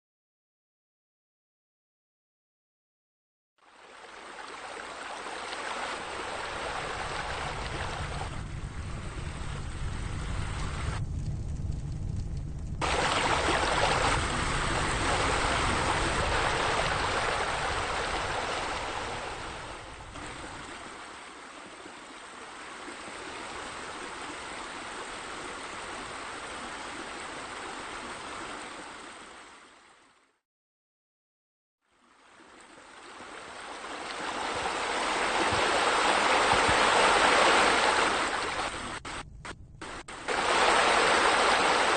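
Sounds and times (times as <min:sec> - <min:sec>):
running water rushing: 0:03.6 - 0:11.0, 0:12.8 - 0:30.2, 0:31.9 - 0:41.9
low rumble: 0:07.9 - 0:16.2, 0:38.7 - 0:40.2.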